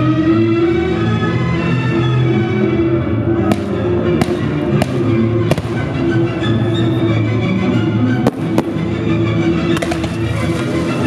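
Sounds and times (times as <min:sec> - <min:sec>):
music playing: 0:00.0 - 0:11.0
fireworks bangs: 0:03.5 - 0:06.0, 0:08.2 - 0:08.9, 0:09.7 - 0:11.0.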